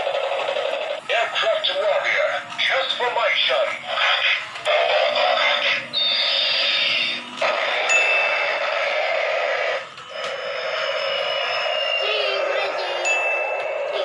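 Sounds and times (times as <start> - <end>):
electronic jet engine hiss: 5.1 - 14.0
falling whistle: 6.0 - 7.2, 10.1 - 12.8
high beep-like tone: 10.1 - 14.0.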